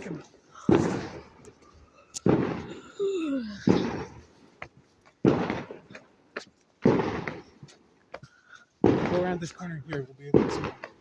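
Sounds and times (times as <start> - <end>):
fireworks bangs with echo: 0.0 - 1.6, 2.2 - 2.8, 3.6 - 4.3, 5.2 - 6.0, 6.8 - 7.7, 8.8 - 11.0
faint fireworks cracks: 0.0 - 11.0.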